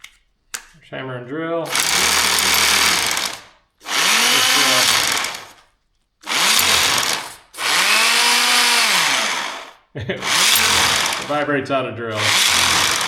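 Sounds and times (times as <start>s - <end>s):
rough hammering noise: 1.7s - 5.6s, 6.2s - 11.5s, 12.1s - 13.0s
rotary hammer motor winding up: 1.7s - 11.5s, 12.1s - 13.0s.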